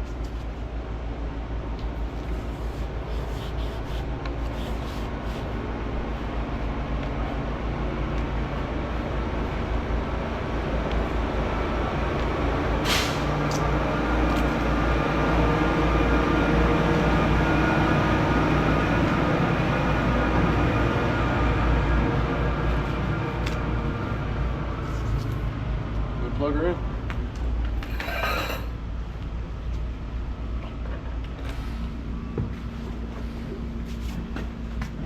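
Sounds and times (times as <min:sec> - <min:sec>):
short hiss: 0:12.8 - 0:13.3.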